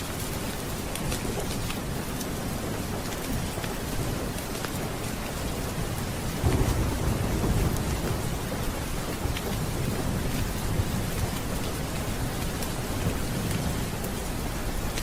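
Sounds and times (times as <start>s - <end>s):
heavy rain falling: 0.0s - 15.0s
thunder rolling: 5.7s - 12.2s.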